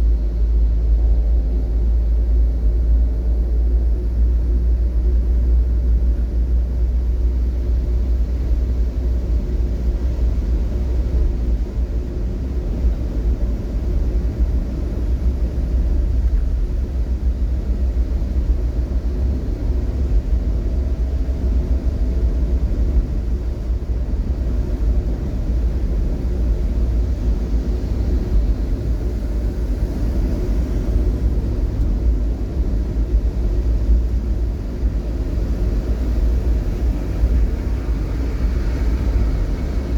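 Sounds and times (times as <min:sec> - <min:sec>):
vehicle rumble: 0:00.0 - 0:39.9.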